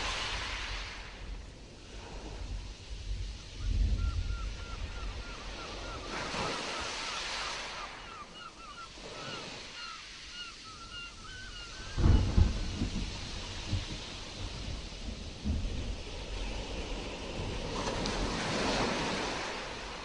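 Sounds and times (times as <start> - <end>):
stormy sea surf surging: 0.0 - 20.0
wind: 0.0 - 20.0
thunder rumble: 11.9 - 18.4.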